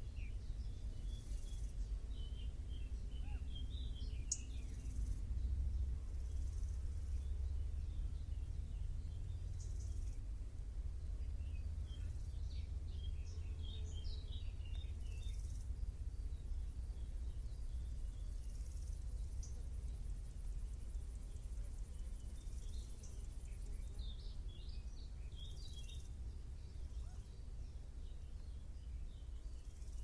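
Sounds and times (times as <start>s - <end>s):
low steady rumble: 0.0s - 30.0s
small birds chirping: 0.0s - 30.0s
insect chirring: 4.1s - 7.6s, 9.3s - 10.3s, 11.7s - 24.3s, 29.1s - 30.0s.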